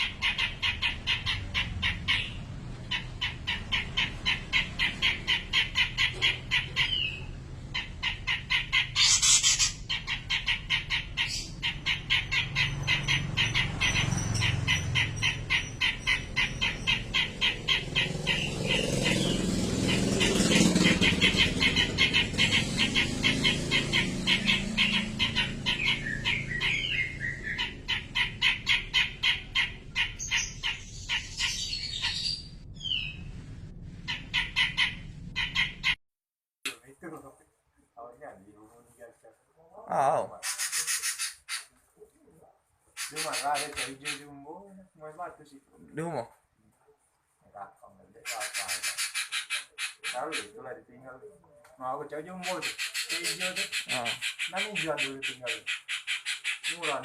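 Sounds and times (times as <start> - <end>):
bulbul calling harsh notes: 0.0 - 33.3.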